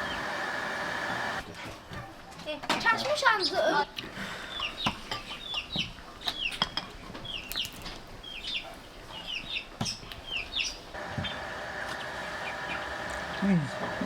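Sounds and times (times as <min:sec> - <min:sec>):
bird cheeping: 0:11.1 - 0:13.5.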